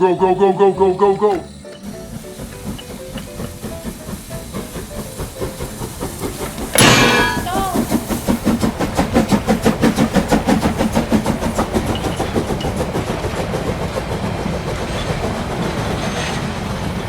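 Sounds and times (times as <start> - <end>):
toy train chugging on track: 0.0 - 17.0.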